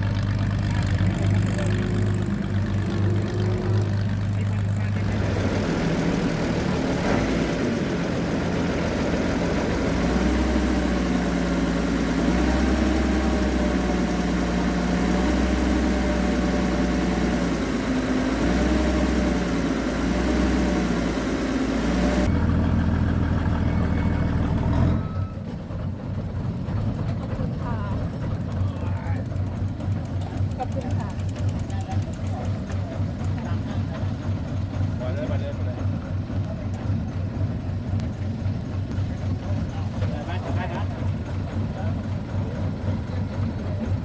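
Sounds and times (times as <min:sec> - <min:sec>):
constant noisy rush: 0:00.0 - 0:16.2, 0:25.5 - 0:44.0
engine running at low revs: 0:00.0 - 0:44.0.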